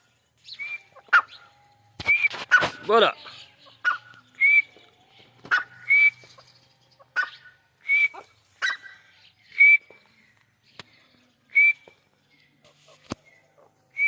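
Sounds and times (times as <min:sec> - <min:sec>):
bird calling with rising whistle: 0:00.5 - 0:02.5, 0:03.9 - 0:04.8, 0:05.5 - 0:06.4, 0:07.2 - 0:10.0.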